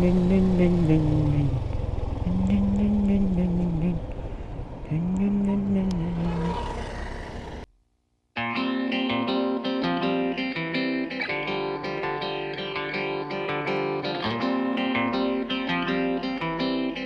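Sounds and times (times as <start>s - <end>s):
plucked guitar rhythmic pattern: 8.4s - 17.0s.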